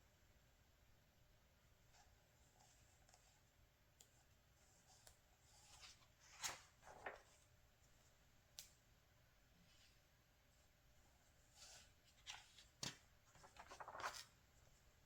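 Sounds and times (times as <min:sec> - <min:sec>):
magazine pages rustling: 0:05.7 - 0:07.5, 0:11.7 - 0:14.4.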